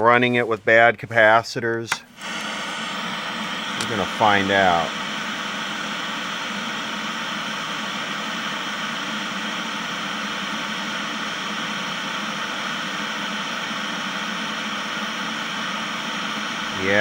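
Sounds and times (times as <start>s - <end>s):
television static hiss: 1.9s - 17.0s.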